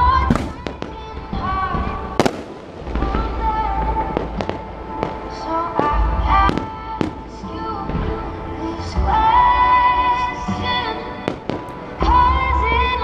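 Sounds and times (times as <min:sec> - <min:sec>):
firework bangs: 0:00.0 - 0:08.3, 0:11.2 - 0:12.2
music playing: 0:00.0 - 0:13.0.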